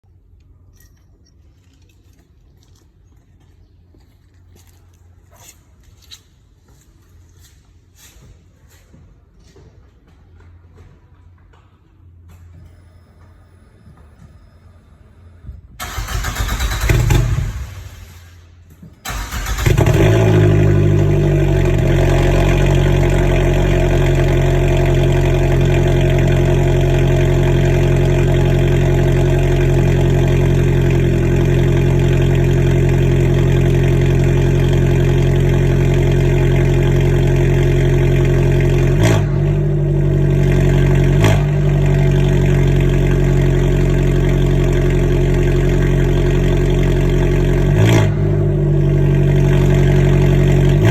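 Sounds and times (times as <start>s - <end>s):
car engine cold start: 15.8s - 22.0s
car engine fast idle: 15.8s - 34.5s.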